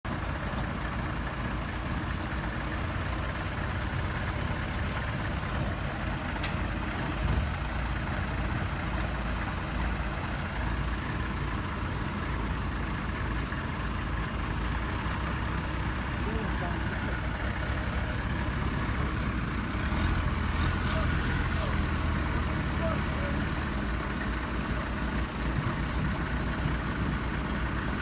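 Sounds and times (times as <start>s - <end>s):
heavy vehicle engine rumbling: 0.0s - 28.0s.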